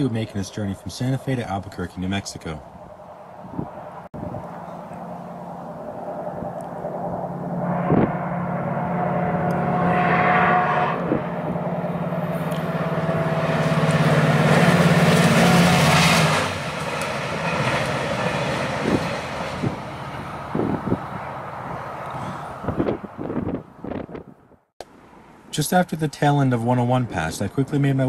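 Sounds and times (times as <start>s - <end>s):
diesel locomotive engine drone: 0.0s - 25.5s
wheel-on-rail noise: 3.0s - 23.3s.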